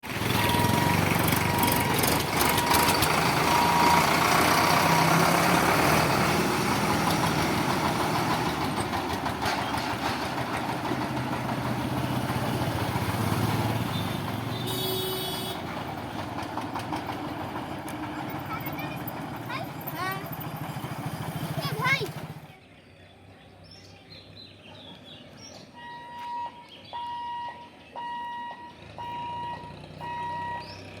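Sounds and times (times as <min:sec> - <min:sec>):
loud vehicle noise: 0:00.0 - 0:31.0
short sharp horn: 0:14.6 - 0:15.7
high beeping tone: 0:25.8 - 0:30.7.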